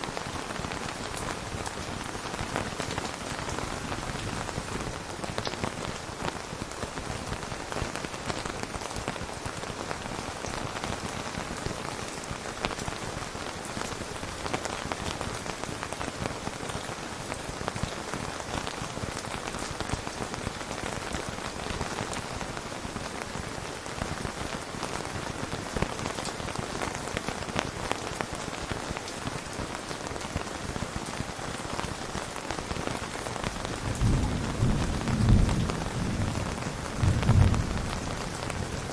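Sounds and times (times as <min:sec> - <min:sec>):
rain falling steadily: 0:00.0 - 0:38.9
low thunder rumble: 0:33.9 - 0:38.7.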